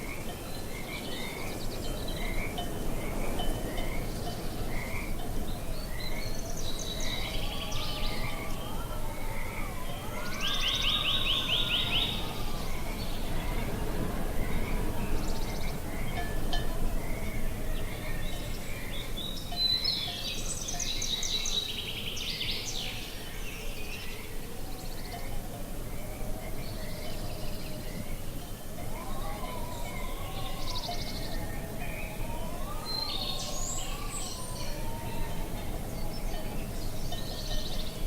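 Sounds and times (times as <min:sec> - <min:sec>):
wind noise: 0:00.0 - 0:19.6
small birds chirping: 0:32.8 - 0:38.0.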